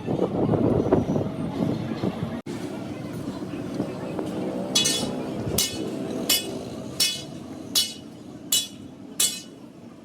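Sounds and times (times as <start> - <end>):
workshop background noise: 2.5 - 10.0
hammer striking metal: 4.8 - 9.6.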